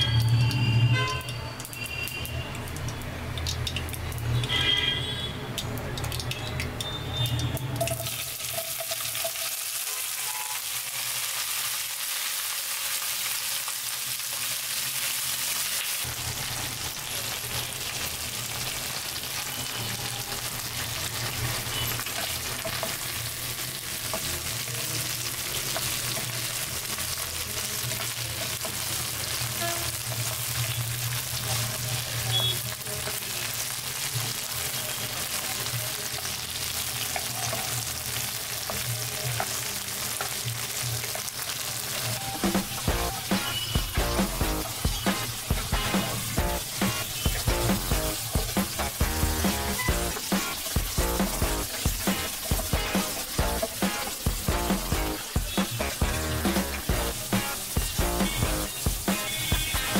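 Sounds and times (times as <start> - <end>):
okra sizzling in oil: 0.0 - 59.9
spatula stirring in wok: 36.2 - 59.9.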